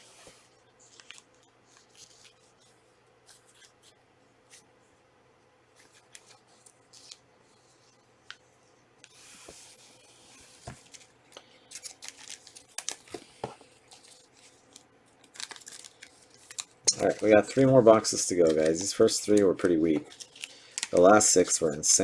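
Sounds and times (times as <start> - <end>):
wrapper crinkling: 10.9 - 22.0
wrapper tearing: 11.7 - 13.2, 13.9 - 21.6
cards clicking: 15.5 - 21.6.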